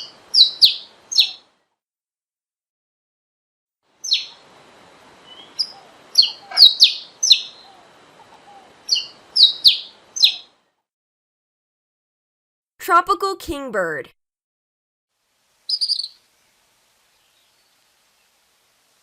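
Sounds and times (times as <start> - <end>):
faint recording hiss: 0.0 - 1.7, 3.9 - 10.8, 15.1 - 19.0
finch calling sharp high notes: 5.3 - 7.7, 15.7 - 16.2.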